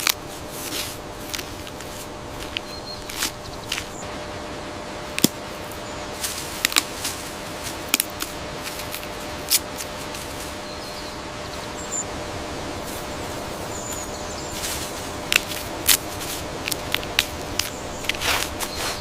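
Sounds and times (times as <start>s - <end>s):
steady background hiss: 0.0s - 19.0s
panda chewing bamboo: 12.6s - 19.0s.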